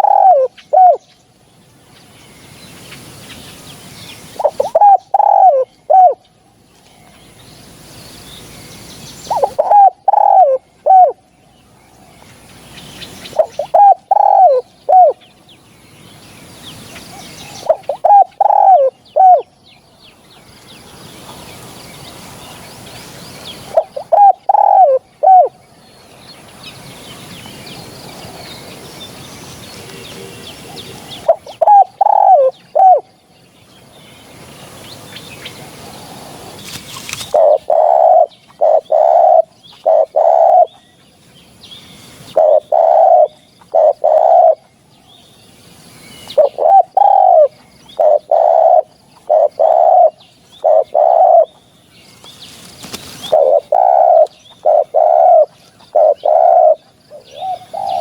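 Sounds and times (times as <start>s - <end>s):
dove cooing: 0.0s - 1.0s, 4.3s - 6.2s, 9.3s - 11.3s, 13.2s - 15.2s, 17.2s - 19.5s, 23.6s - 25.6s, 29.8s - 33.1s, 37.2s - 40.8s, 42.3s - 44.7s, 46.3s - 51.6s, 52.8s - 58.0s.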